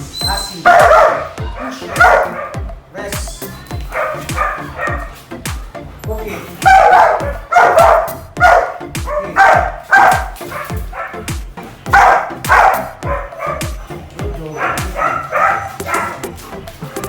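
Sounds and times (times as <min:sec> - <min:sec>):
music with steady beat: 0:00.0 - 0:17.0
dog barking: 0:00.2 - 0:02.6, 0:03.9 - 0:05.2, 0:06.6 - 0:11.3, 0:11.9 - 0:13.8, 0:14.4 - 0:17.0.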